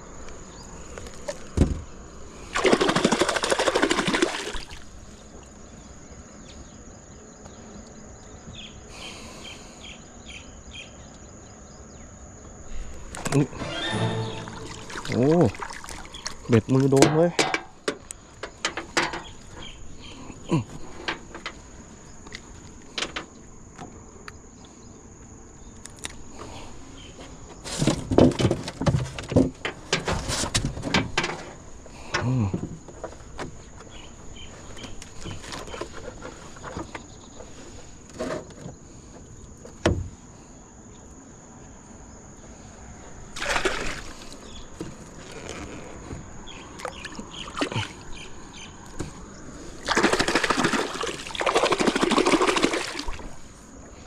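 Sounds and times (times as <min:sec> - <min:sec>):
knocks and clatter in a boat: 0:01.2 - 0:02.0, 0:14.9 - 0:24.0, 0:27.5 - 0:40.3, 0:44.2 - 0:51.0
water splashing: 0:02.4 - 0:05.0, 0:13.2 - 0:16.9, 0:43.3 - 0:44.5, 0:46.8 - 0:48.1, 0:49.6 - 0:53.5
faint high-pitched tone: 0:13.6 - 0:15.5.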